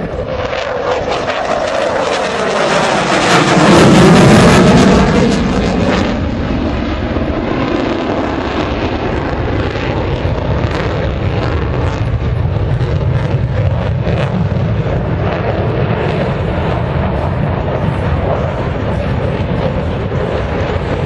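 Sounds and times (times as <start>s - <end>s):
propeller aircraft flying past: 0.0s - 21.0s.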